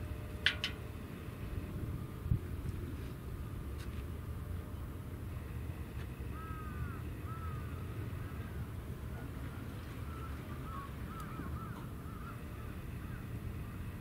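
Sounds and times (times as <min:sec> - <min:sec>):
low rumble of wind: 0:00.0 - 0:14.0
birds calling: 0:06.1 - 0:08.8, 0:09.5 - 0:13.6.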